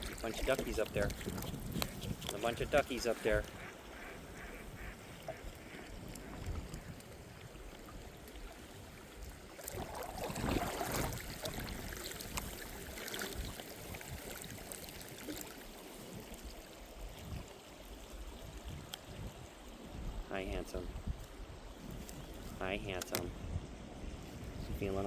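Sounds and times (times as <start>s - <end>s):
water dripping: 0.0s - 3.6s
water splashing around kayak: 0.0s - 23.5s
small clicks: 23.0s - 23.3s.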